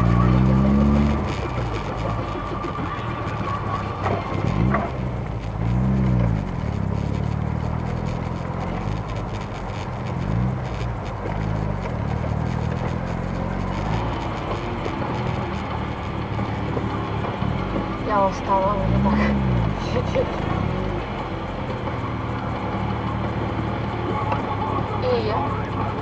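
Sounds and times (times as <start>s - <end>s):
car engine running: 0.0s - 26.0s
road and traffic noise: 0.0s - 26.0s.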